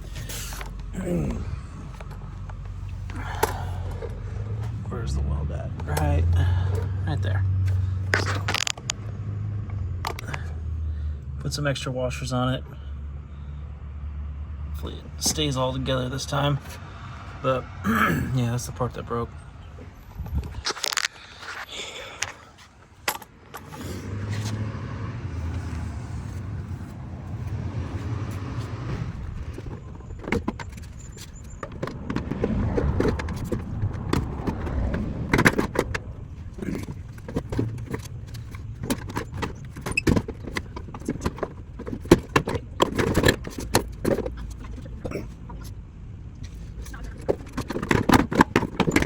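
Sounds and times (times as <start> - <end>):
vehicle engine running: 0.0 - 49.0
clicks and knocks: 8.1 - 9.0, 29.1 - 44.8.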